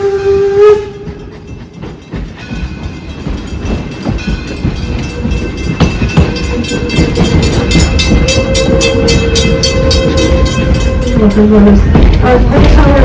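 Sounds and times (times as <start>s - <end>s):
steam locomotive whistle: 0.0s - 1.3s, 6.7s - 13.0s
train rumbling on rails: 0.0s - 13.0s.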